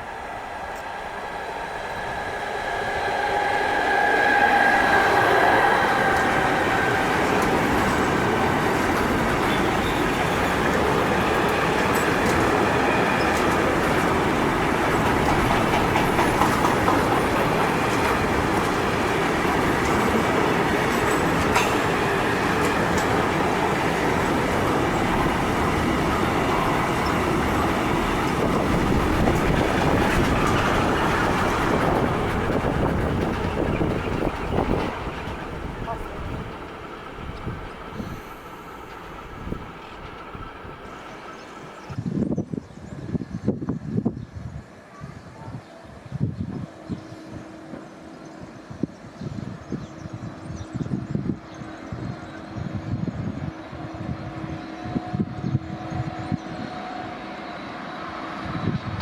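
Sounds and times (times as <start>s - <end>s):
train wheels rumbling on rails: 0.0s - 45.3s
clicking of train wheels: 3.4s - 42.0s.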